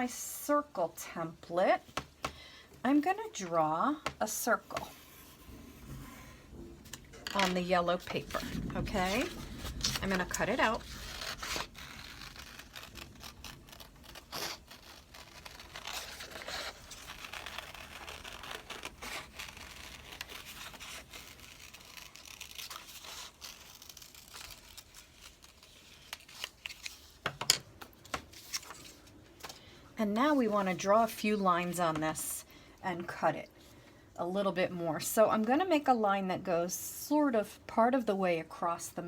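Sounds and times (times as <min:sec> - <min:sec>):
paper rustling: 0:07.2 - 0:31.9.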